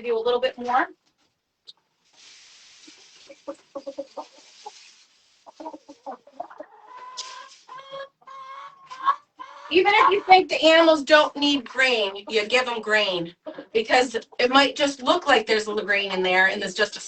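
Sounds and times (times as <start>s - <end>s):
corn being poured: 2.1s - 5.5s
hens clucking: 2.8s - 16.8s.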